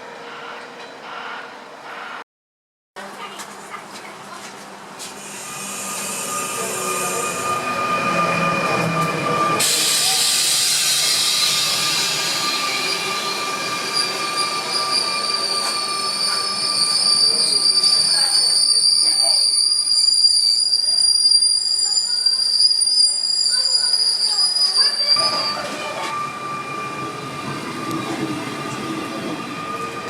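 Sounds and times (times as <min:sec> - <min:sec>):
rail cars rumbling: 0:03.0 - 0:30.0
train wheels squealing: 0:05.2 - 0:30.0.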